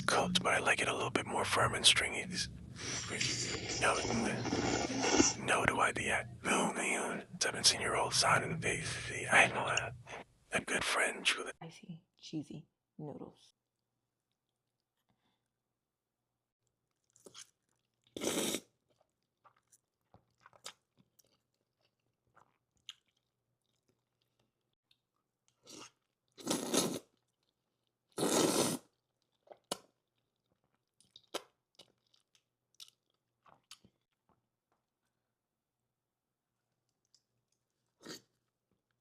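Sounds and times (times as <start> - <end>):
loud eating sounds: 0.0 - 9.9
wet chewing and mouth clicks: 16.9 - 28.0, 28.9 - 34.8.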